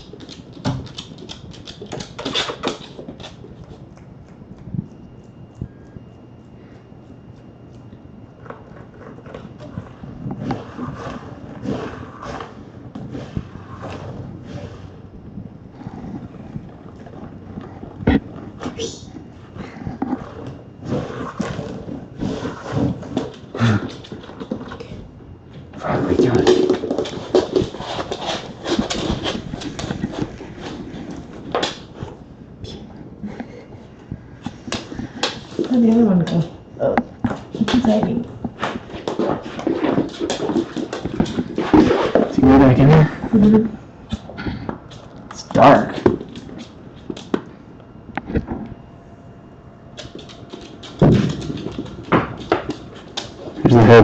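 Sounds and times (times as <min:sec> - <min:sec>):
rustling and scuffling: 0:06.6 - 0:32.4, 0:33.3 - 0:47.7.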